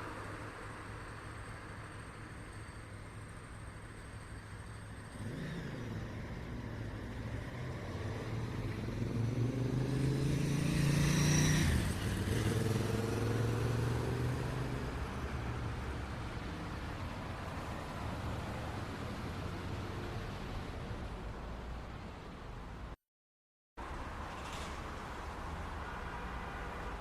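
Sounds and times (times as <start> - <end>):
city traffic hum: 0.0 - 23.0, 23.8 - 27.0
vehicle driving past: 5.1 - 16.0.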